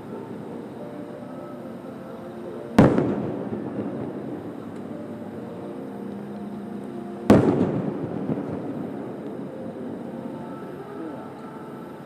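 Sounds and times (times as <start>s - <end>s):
steady background noise: 0.0s - 12.0s
rolling echo: 2.6s - 12.0s
firework shells bursting: 2.7s - 10.6s.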